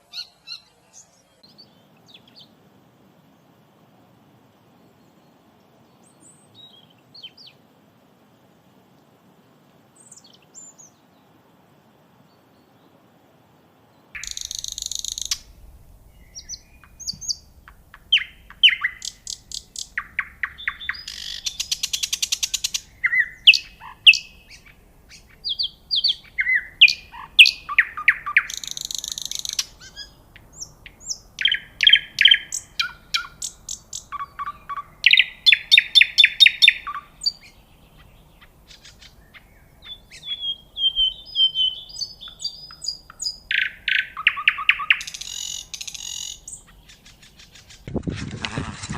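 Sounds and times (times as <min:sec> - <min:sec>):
birds chirping and trilling: 0:14.2 - 0:48.9.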